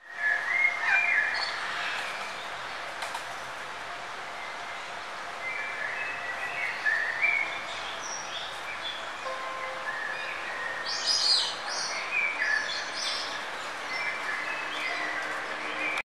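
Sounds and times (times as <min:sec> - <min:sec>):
forest background hiss: 0:00.0 - 0:16.0
birds chirping and whistling: 0:09.8 - 0:16.0.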